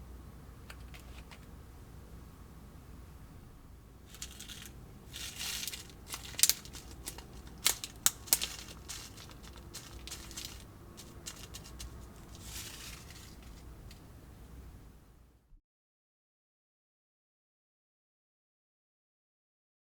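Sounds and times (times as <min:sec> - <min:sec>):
packaging crinkling: 0:04.1 - 0:14.0.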